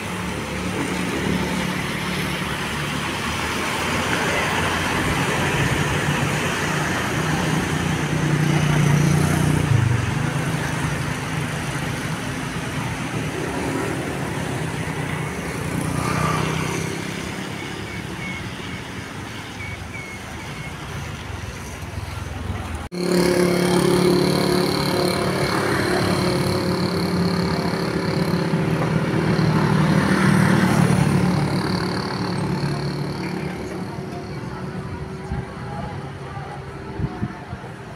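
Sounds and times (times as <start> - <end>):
large vehicle engines passing: 0.0 - 37.9.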